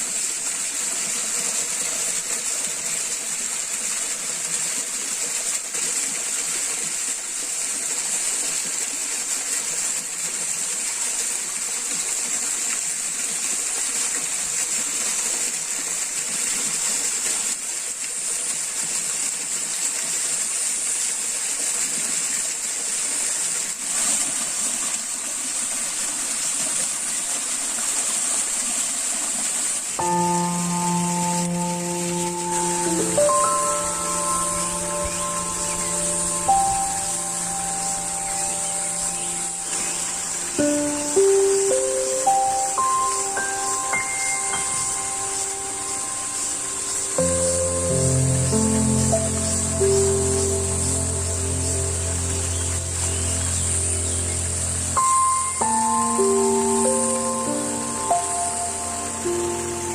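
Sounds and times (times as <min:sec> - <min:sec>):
stream water rushing: 0:00.0 - 0:59.9
high-pitched hiss: 0:30.0 - 0:59.9.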